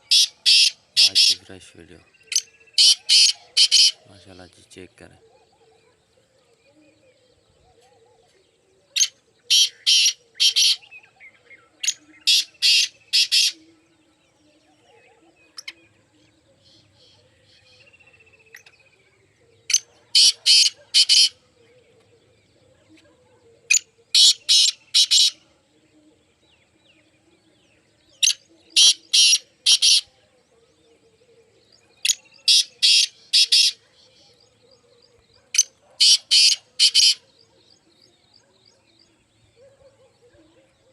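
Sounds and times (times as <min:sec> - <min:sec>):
bird harsh rasping calls: 0:00.0 - 0:04.5, 0:09.0 - 0:10.9, 0:11.8 - 0:13.7, 0:19.7 - 0:21.4, 0:23.7 - 0:25.4, 0:28.2 - 0:30.1, 0:32.0 - 0:34.4, 0:35.5 - 0:37.3.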